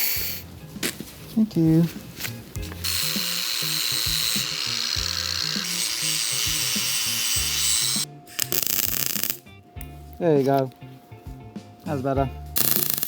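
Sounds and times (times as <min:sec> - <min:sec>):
background music with a beat: 0:01.7 - 0:13.0
drill whining through metal: 0:02.7 - 0:09.4.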